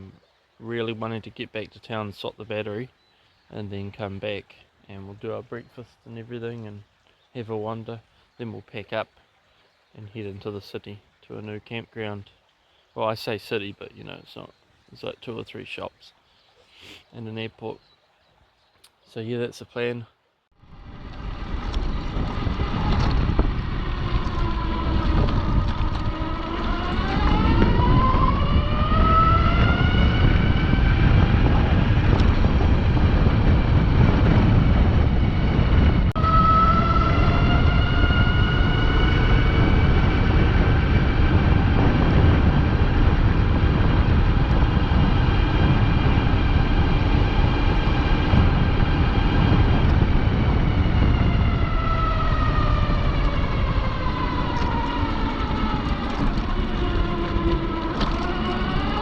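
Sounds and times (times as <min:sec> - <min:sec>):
wind rumble on microphone: 0:20.5 - 0:59.0
electric motorbike motor whining: 0:20.6 - 0:59.0.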